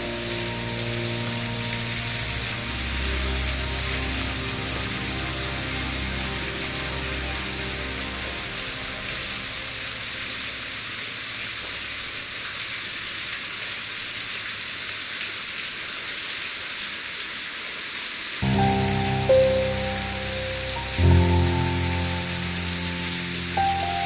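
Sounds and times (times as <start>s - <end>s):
background music: 0.0s - 10.6s, 18.4s - 24.0s
waterfall rushing: 0.0s - 14.7s, 16.4s - 24.0s.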